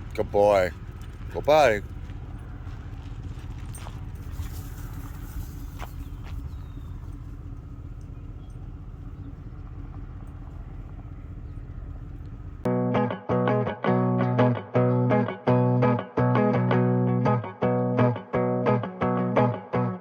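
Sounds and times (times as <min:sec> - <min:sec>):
truck engine and road rumble: 0:00.0 - 0:12.7.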